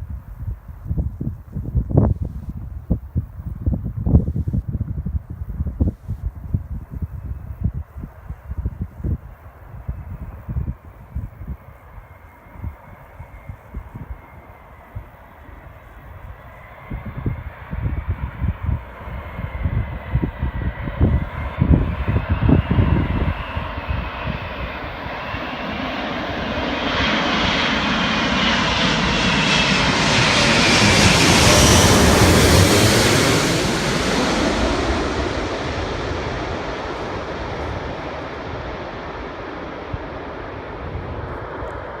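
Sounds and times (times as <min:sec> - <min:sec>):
wind buffeting microphone: 0:00.0 - 0:42.0
jet airliner passing overhead: 0:06.4 - 0:42.0
falling jet whine: 0:09.5 - 0:42.0.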